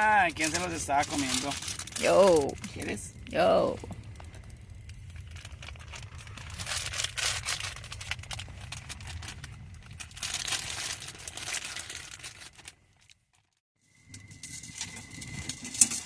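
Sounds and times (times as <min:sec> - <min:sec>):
low rumble: 0:00.0 - 0:12.7
plastic crinkling: 0:00.0 - 0:13.6.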